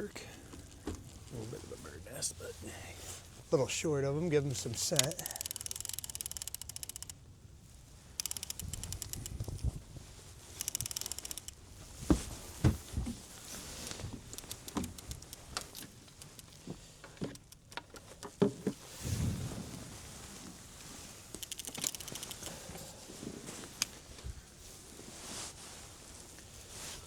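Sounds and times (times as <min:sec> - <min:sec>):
fishing reel ticking: 0:04.7 - 0:07.2, 0:08.2 - 0:09.7, 0:10.6 - 0:11.6, 0:14.3 - 0:18.4, 0:21.4 - 0:22.6
sharp clicks and knocks: 0:05.0 - 0:07.1, 0:08.2 - 0:09.7, 0:10.6 - 0:11.6, 0:13.9 - 0:18.8, 0:21.4 - 0:22.5.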